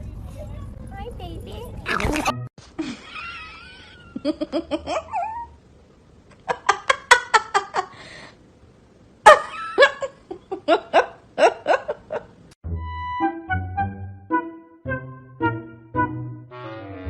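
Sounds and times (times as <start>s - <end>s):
person laughing hard: 2.8s - 5.6s
music: 12.6s - 17.0s.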